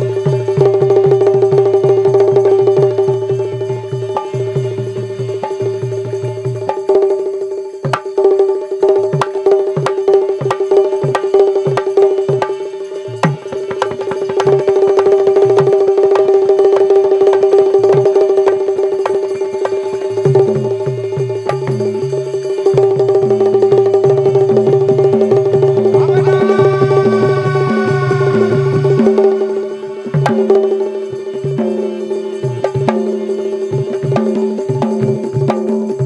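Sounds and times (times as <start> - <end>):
fast hand drum strokes: 0.0 - 36.0
held drone note: 25.5 - 31.6.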